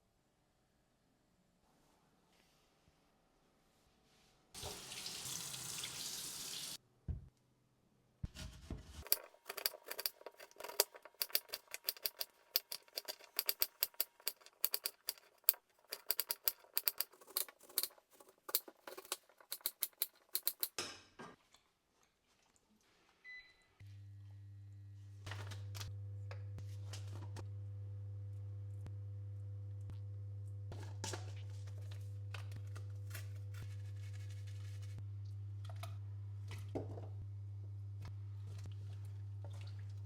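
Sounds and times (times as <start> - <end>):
kitchen tap running: 4.6 - 6.8
clicks and taps of kitchen work: 9.0 - 21.4.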